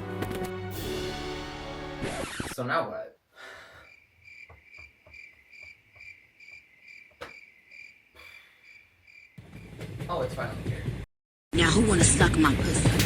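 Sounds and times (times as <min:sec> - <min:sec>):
crickets chirping: 0:03.4 - 0:09.7.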